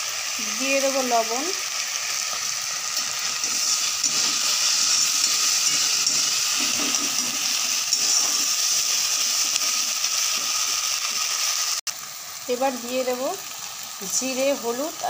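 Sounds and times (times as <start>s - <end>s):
onion sizzling in hot oil: 0.0s - 15.0s
spatula stirring: 2.3s - 11.4s.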